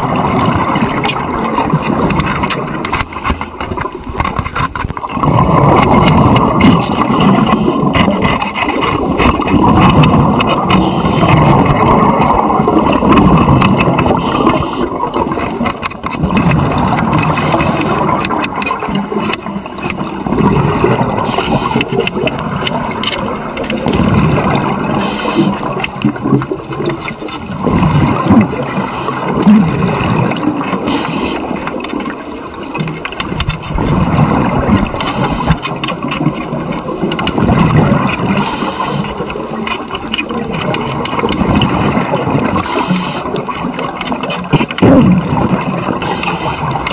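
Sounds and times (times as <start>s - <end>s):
exhaled bubbles rumbling: 0.0s - 46.9s
scuba regulator inhalation hiss: 7.0s - 7.9s, 10.8s - 11.4s, 14.2s - 15.0s, 17.4s - 18.0s, 21.3s - 21.9s, 25.0s - 25.6s, 28.7s - 29.3s, 30.9s - 31.5s, 35.0s - 35.6s, 38.4s - 39.1s, 42.6s - 43.3s, 46.0s - 46.7s.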